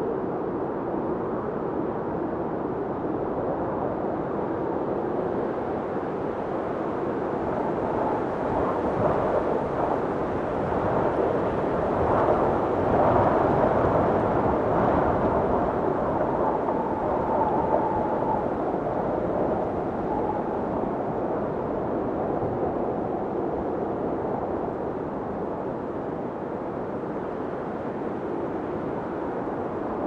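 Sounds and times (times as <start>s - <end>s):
blizzard wind roaring: 0.0s - 30.0s
faint high wind whistle: 6.9s - 23.6s.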